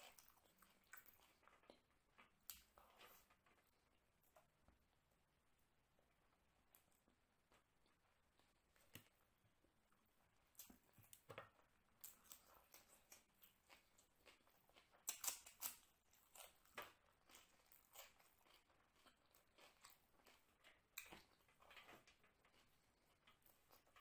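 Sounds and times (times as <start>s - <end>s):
crunching crisp vegetable: 12.0s - 24.0s.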